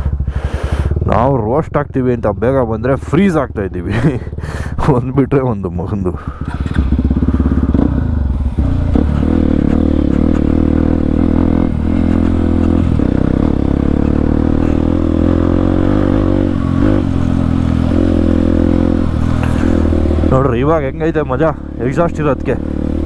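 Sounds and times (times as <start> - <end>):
loud motorcycle engine: 0.0 - 23.0.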